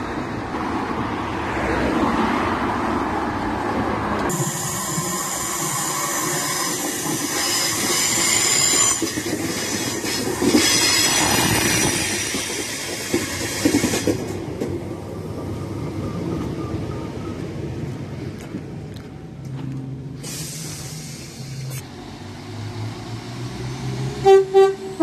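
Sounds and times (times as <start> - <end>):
train rumble: 3.3 - 25.0
wheels clacking over rail joints: 4.2 - 15.0
train wheels squealing: 4.3 - 14.3.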